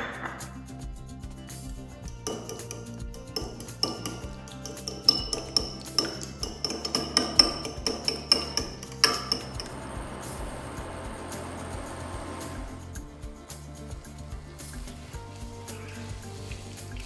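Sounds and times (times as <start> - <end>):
metal utensil clinking ceramic bowl: 2.1 - 9.8.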